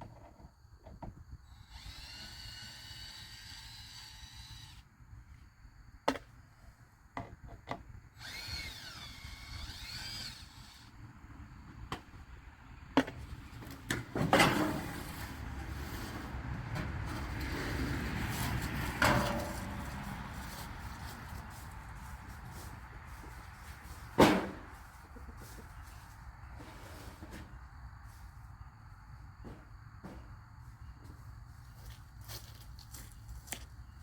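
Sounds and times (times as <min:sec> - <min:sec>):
cordless drill whining: 0:01.6 - 0:04.8, 0:08.2 - 0:10.9
sharp knocks and clanks: 0:13.9 - 0:15.0, 0:18.9 - 0:20.0, 0:24.1 - 0:24.7.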